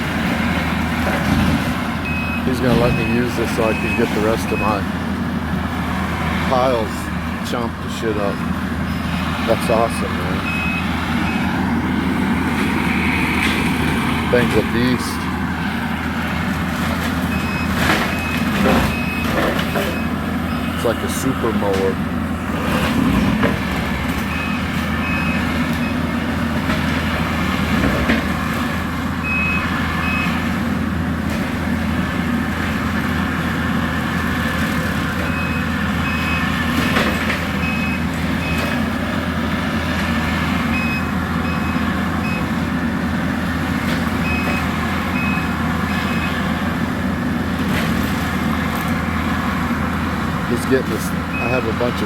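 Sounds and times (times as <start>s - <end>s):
skid steer engine running: 0.0s - 52.0s
backup alarm beeping: 2.0s - 4.9s, 8.3s - 11.5s, 17.3s - 21.1s, 24.2s - 26.0s, 29.2s - 30.4s, 35.3s - 36.5s, 37.6s - 38.8s, 40.7s - 42.5s, 44.2s - 46.4s, 51.2s - 51.9s.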